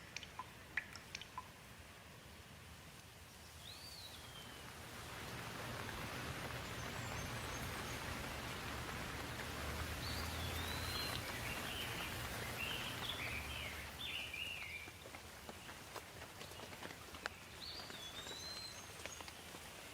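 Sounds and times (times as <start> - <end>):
rain hissing: 0.0 - 19.9
bird chirping: 10.0 - 15.0.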